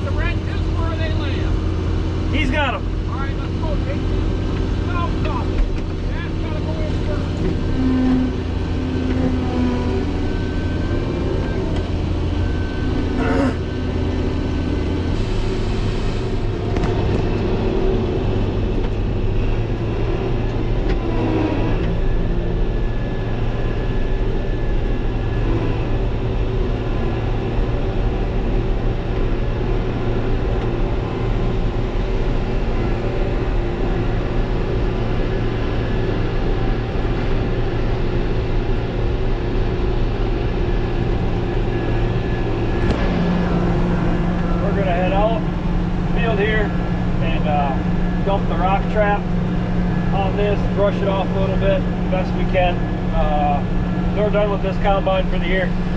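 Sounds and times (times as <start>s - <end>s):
combine harvester engine running: 0.0s - 55.9s.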